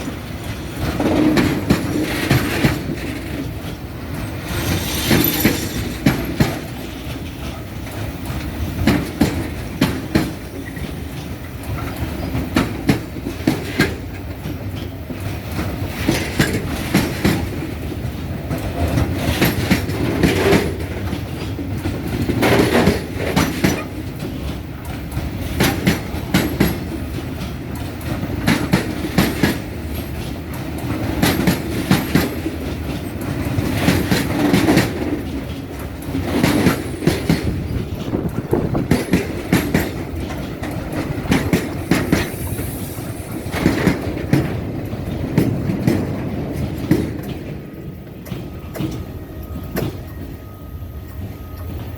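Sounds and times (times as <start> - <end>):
train wheels clacking over rail joints: 0.0 - 50.4
train rumble: 0.0 - 51.9.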